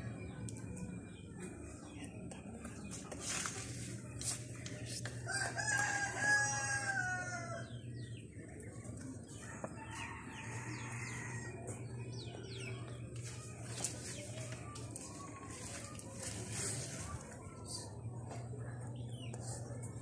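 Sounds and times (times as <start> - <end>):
rooster crowing: 5.3 - 7.7.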